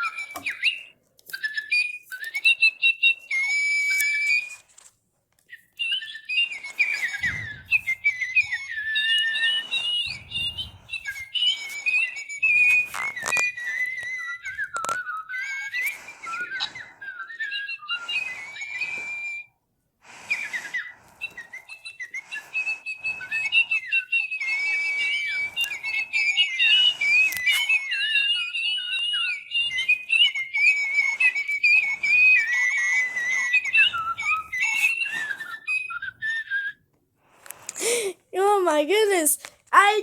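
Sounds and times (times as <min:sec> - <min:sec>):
electronic toy birds chirping: 0:05.6 - 0:19.5, 0:20.3 - 0:36.5.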